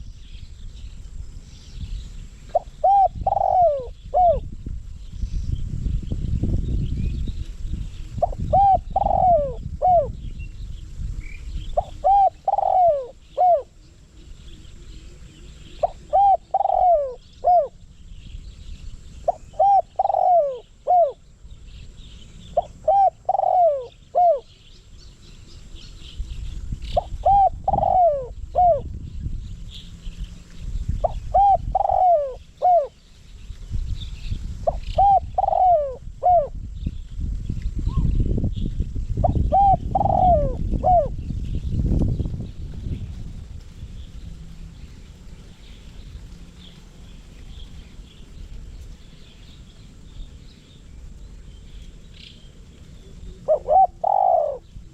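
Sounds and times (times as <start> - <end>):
dove cooing: 2.5 - 4.5, 8.2 - 10.2, 11.6 - 14.1, 15.0 - 17.8, 19.2 - 21.2, 22.5 - 24.5, 26.9 - 28.9, 31.0 - 33.0, 34.6 - 36.6, 39.2 - 41.3, 53.0 - 54.9.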